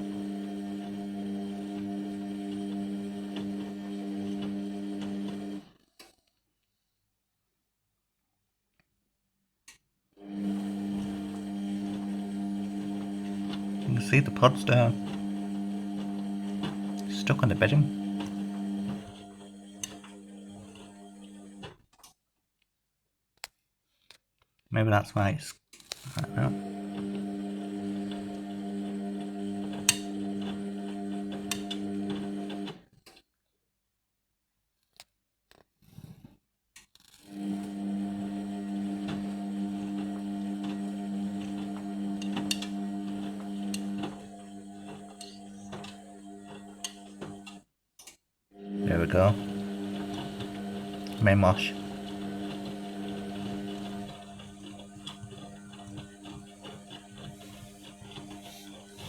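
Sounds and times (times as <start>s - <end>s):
washing machine humming: 0.0s - 5.6s, 10.2s - 21.7s, 26.2s - 32.8s, 37.4s - 47.6s, 48.6s - 59.0s.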